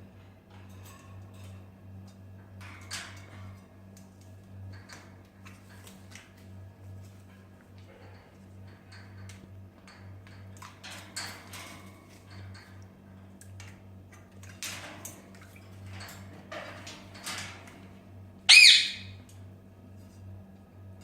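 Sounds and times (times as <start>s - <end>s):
parrot squawk: 18.5s - 19.2s.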